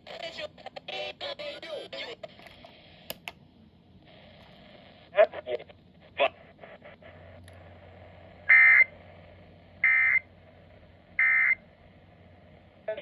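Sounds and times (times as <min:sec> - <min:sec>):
buzzy data bursts from radio: 0:04.1 - 0:11.7.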